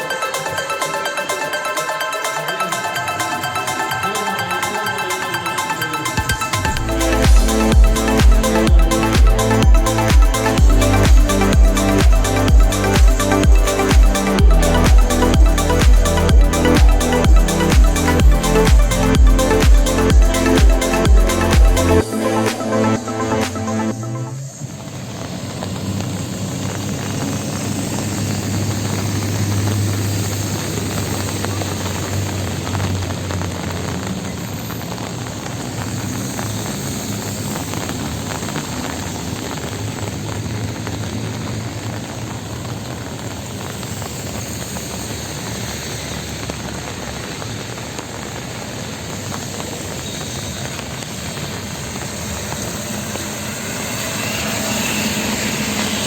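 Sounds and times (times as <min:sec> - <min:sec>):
rain hissing on wet road: 0:24.5 - 0:56.0
vehicle engines running: 0:50.6 - 0:56.0.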